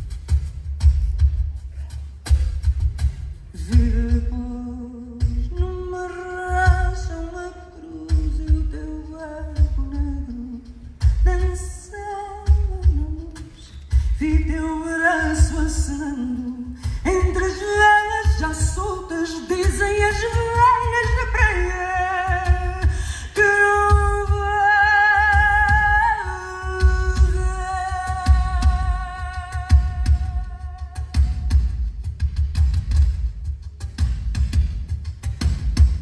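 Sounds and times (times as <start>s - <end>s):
woman singing: 3.5s - 31.7s.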